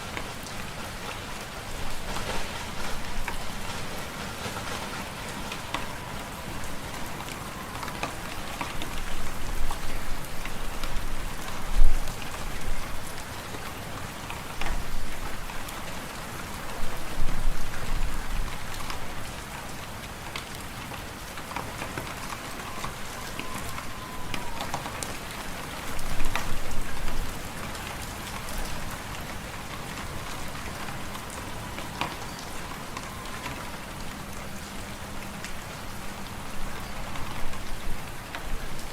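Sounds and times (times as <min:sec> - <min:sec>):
fireplace fire crackling: 0:00.0 - 0:13.7.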